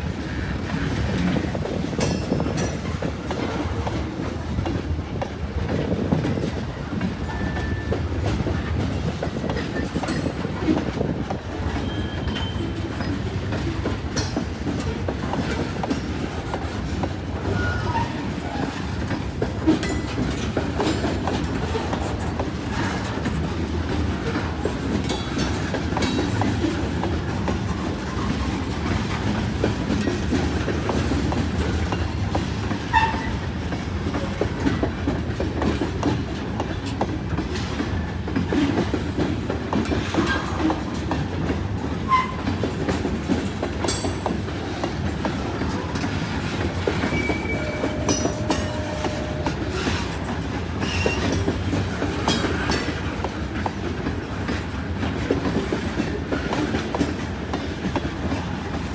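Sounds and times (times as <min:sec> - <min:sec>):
train wheels clacking over rail joints: 0:00.0 - 0:58.9
wheel squeals: 0:11.7 - 0:13.2, 0:17.5 - 0:19.0, 0:32.9 - 0:33.4, 0:42.0 - 0:42.5, 0:45.6 - 0:53.0.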